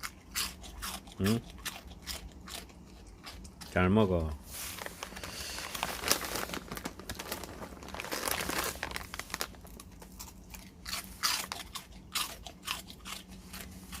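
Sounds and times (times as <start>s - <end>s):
dog crunching crackers: 0.0s - 4.2s, 4.8s - 14.0s.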